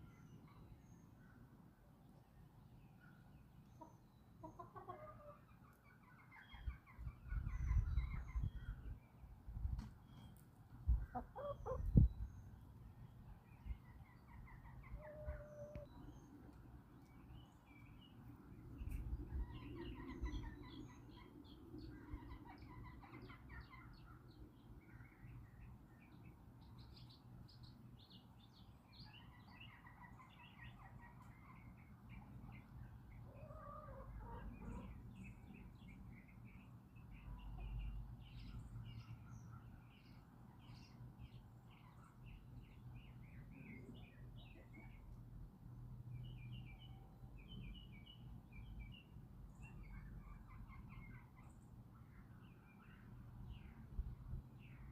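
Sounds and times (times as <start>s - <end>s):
songbirds chirping: 0.0s - 54.9s
chickens clucking: 3.8s - 8.5s, 10.9s - 12.1s, 13.8s - 16.6s, 32.2s - 35.1s.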